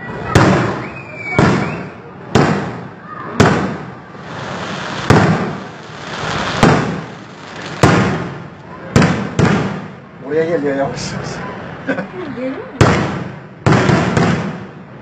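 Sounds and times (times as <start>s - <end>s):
firework shells bursting: 2.4s - 10.0s.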